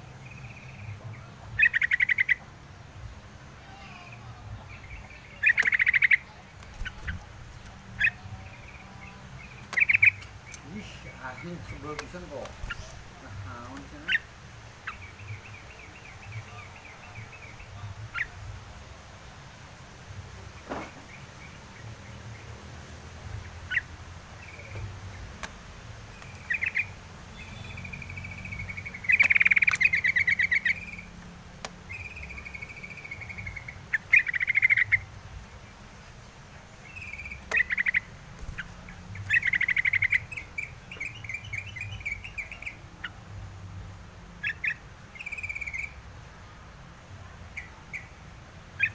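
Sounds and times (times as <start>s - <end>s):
bulbul singing trilled notes: 3.8s - 7.2s, 7.9s - 18.4s, 23.4s - 31.2s, 31.8s - 35.2s, 36.8s - 43.7s, 44.3s - 46.1s.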